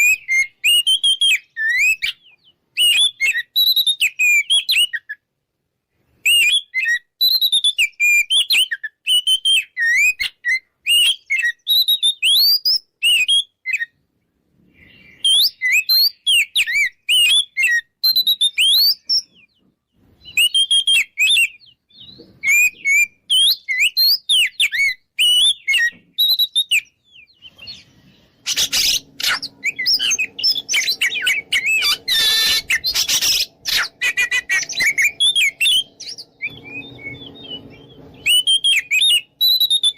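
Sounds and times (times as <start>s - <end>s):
bird singing whistles and chirps: 0.0s - 5.2s, 6.2s - 14.0s, 14.7s - 39.9s
harsh scratchy birdsong: 14.5s - 39.9s.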